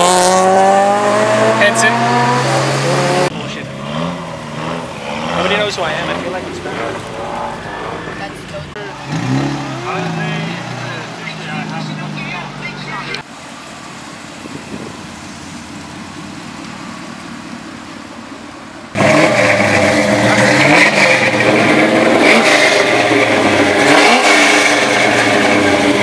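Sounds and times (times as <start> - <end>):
car engine revving: 0.0 - 13.3, 18.9 - 26.0.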